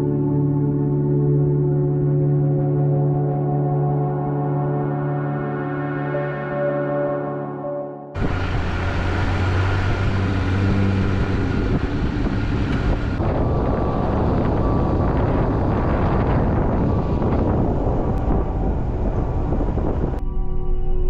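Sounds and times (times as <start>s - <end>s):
car engine and tyre noise: 8.2s - 20.2s.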